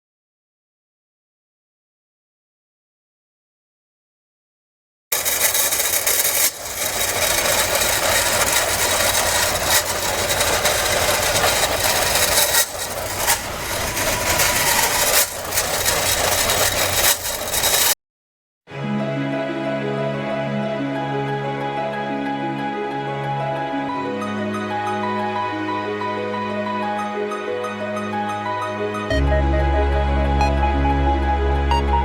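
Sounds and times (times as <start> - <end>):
car engine with hissing rasp: 5.4 - 17.5.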